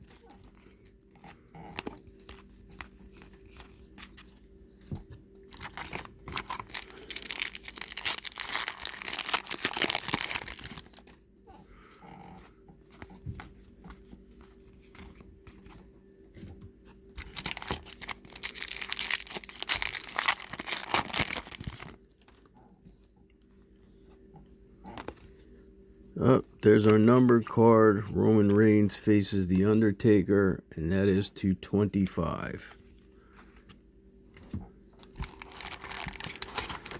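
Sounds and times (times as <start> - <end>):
wrappers tearing and crinkling: 5.5 - 11.1, 17.2 - 22.4, 35.0 - 36.9.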